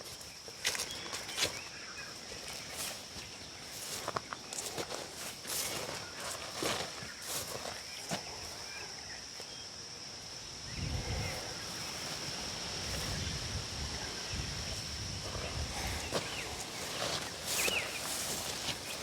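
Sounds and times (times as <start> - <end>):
high insect drone: 0.0 - 19.0
low rumbling on microphone: 10.6 - 11.6
footsteps: 13.9 - 19.0.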